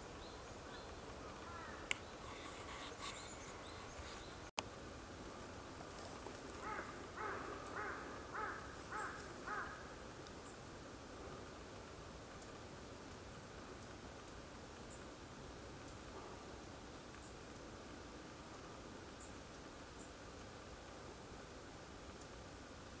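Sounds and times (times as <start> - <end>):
faint outdoor background noise: 0.0 - 23.0
bird calling: 0.6 - 4.5, 6.6 - 9.8.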